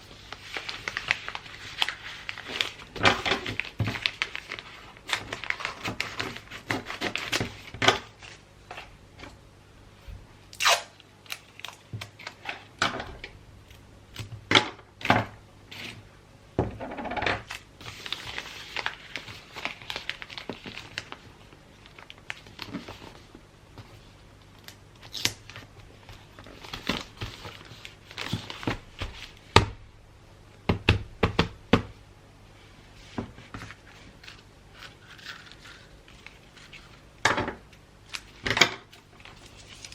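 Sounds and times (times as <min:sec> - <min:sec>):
wrapping paper crinkling and tearing: 0:00.1 - 0:08.4, 0:17.4 - 0:23.4, 0:33.6 - 0:37.1, 0:38.0 - 0:39.9.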